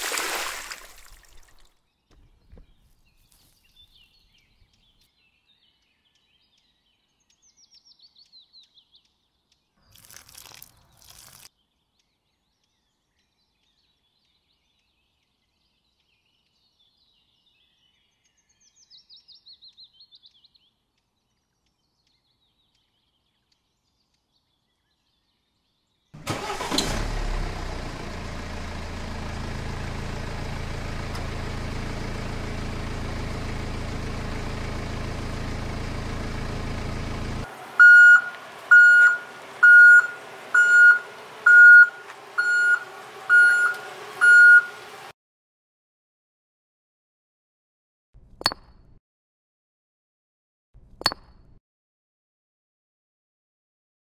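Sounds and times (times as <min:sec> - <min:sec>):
tractor engine running: 0:26.2 - 0:45.1
tractor engine starting: 0:26.2 - 0:45.1
reversing beeps: 0:37.8 - 0:44.8.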